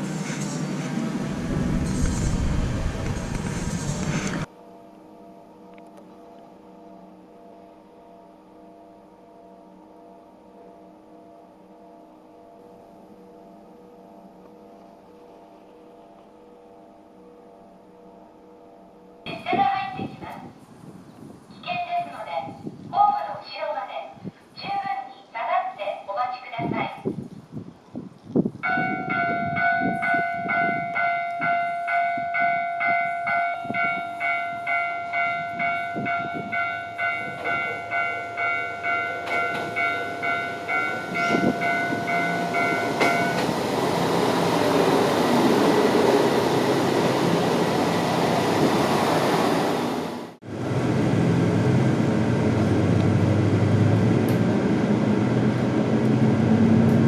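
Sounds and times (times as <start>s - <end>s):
diesel train passing: 0.0s - 4.8s, 28.7s - 57.0s
level crossing bell clanging: 28.6s - 43.6s.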